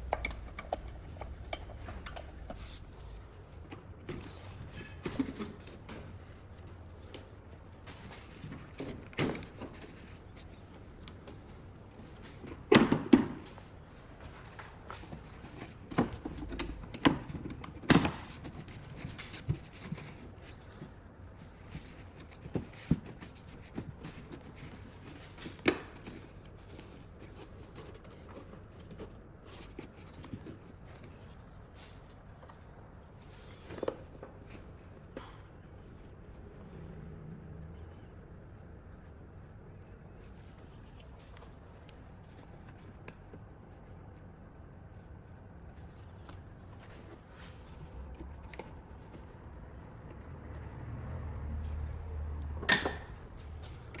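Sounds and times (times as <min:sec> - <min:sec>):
faint steady background noise: 0:00.0 - 0:54.0.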